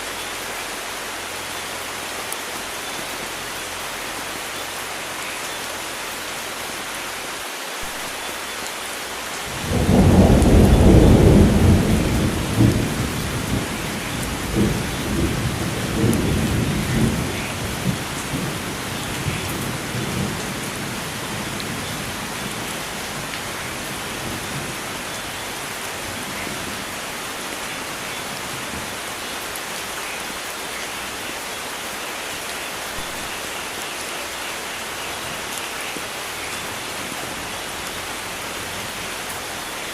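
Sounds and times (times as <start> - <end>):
steady rain: 0.0 - 39.9
thunder rumbling: 9.5 - 27.0.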